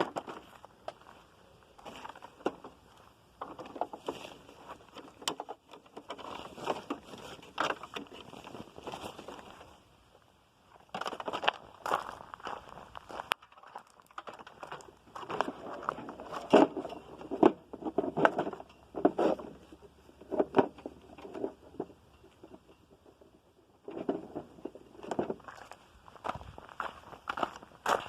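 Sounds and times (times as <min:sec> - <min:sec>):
crunching steps and taps: 0:00.0 - 0:22.7, 0:23.9 - 0:28.0.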